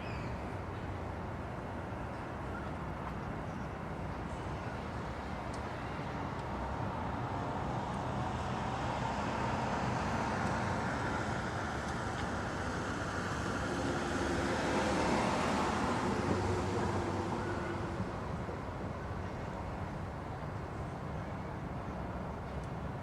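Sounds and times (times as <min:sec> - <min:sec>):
road traffic noise: 0:05.1 - 0:20.4.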